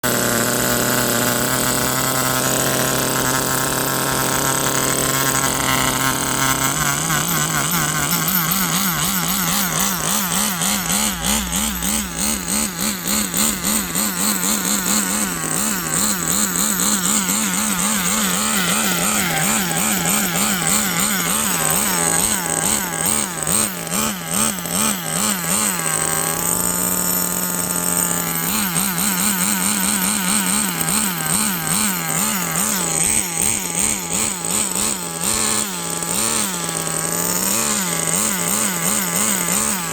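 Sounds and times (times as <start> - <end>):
small nitro engine running: 0.0 - 39.9.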